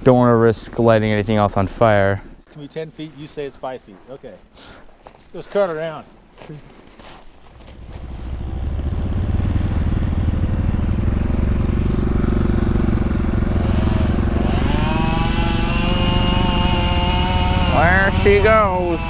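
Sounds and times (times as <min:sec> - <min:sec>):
chainsaw cutting tree trunk: 0:11.1 - 0:19.0.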